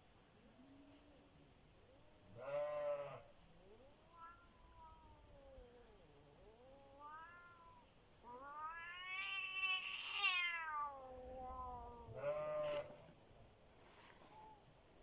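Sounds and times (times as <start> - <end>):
cats yowling: 3.8 - 13.0.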